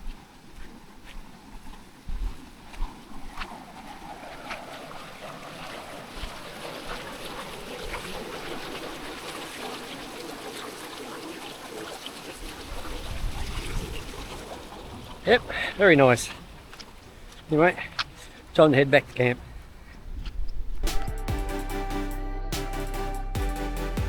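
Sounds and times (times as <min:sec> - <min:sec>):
water running over rocks: 0:00.1 - 0:18.9
wind buffeting microphone: 0:12.4 - 0:18.2, 0:19.4 - 0:21.0.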